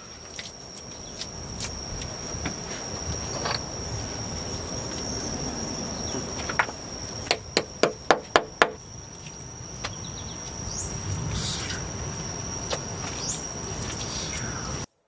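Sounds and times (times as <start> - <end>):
high-pitched insect drone: 0.0 - 14.9.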